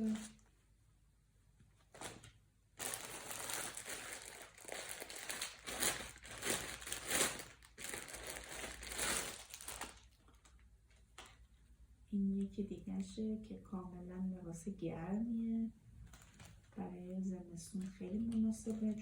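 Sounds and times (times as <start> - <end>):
packaging crinkling and rustling: 0.0 - 0.5, 1.8 - 11.6, 16.0 - 16.9.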